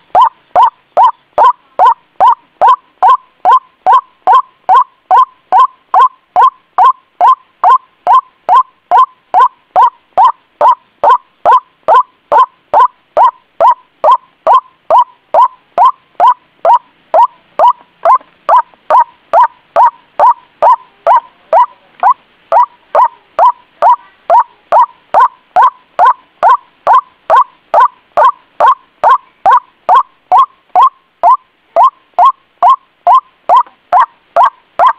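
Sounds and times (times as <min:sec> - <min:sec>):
waterhen calling: 0:00.0 - 0:34.9.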